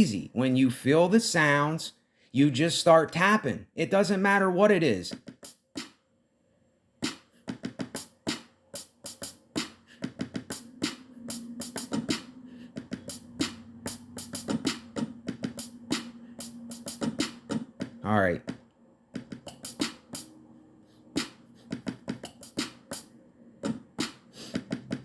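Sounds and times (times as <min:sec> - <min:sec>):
drum sample hits: 0:09.1 - 0:18.6.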